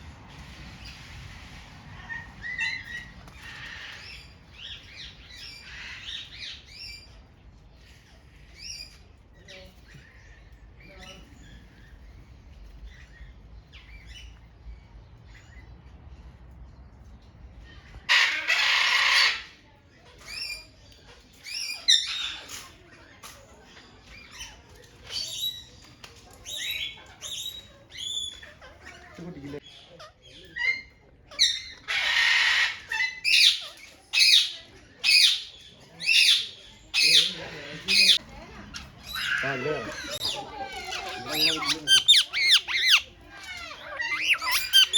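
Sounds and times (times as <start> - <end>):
parrots chirping and calling: 0.4 - 16.0, 17.6 - 44.9
parrot squawking: 30.6 - 44.9.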